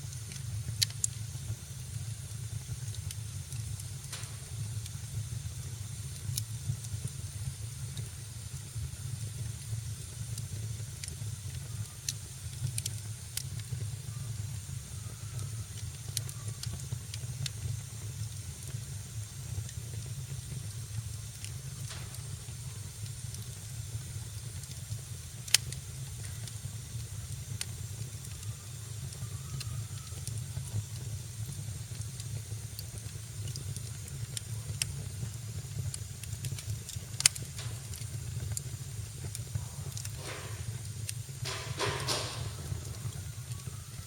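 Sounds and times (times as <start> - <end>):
fire rumble and hiss: 0.0 - 44.0
small crackles: 1.9 - 44.0
sharp pops: 4.0 - 5.0, 36.5 - 43.2.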